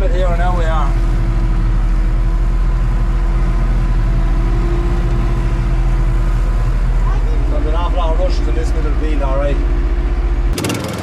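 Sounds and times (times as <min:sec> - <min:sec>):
constant hum: 0:00.0 - 0:10.8
tractor engine running under load: 0:00.0 - 0:11.0.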